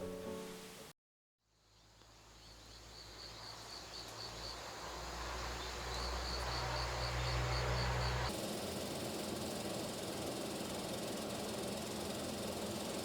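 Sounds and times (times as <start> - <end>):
insect chirping: 1.6 - 8.3.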